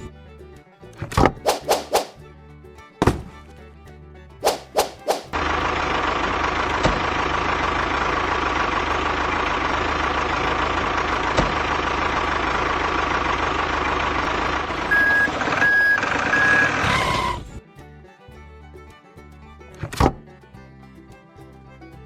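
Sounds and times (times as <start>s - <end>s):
music: 0.0s - 10.2s, 14.6s - 22.0s
truck engine running: 0.0s - 22.0s
reversing beeps: 14.9s - 17.6s.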